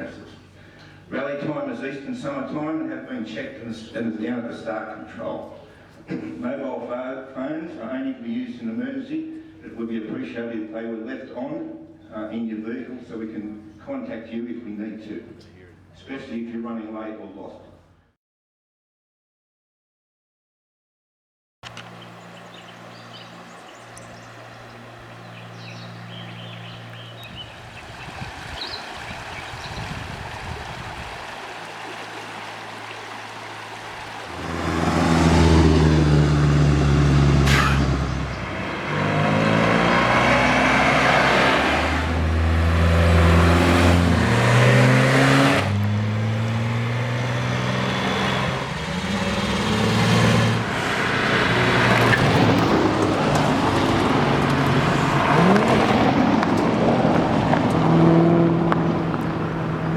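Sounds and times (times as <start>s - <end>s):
car engines revving: 21.7s - 29.6s, 31.2s - 59.9s.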